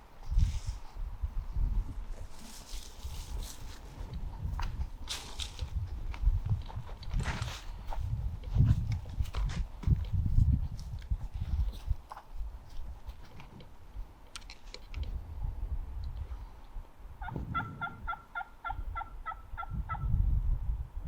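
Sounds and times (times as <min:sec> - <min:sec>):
turkey yelps: 0:17.2 - 0:20.1.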